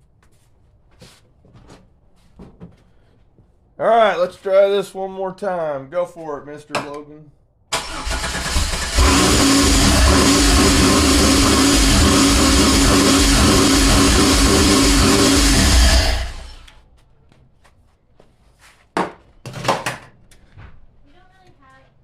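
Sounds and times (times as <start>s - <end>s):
car engine running loudly: 8.1s - 16.7s.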